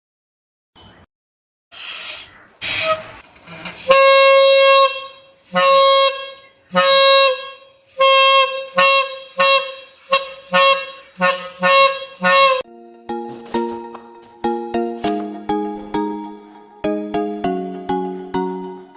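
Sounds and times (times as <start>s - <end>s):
buzzy horn honking: 2.6s - 12.7s.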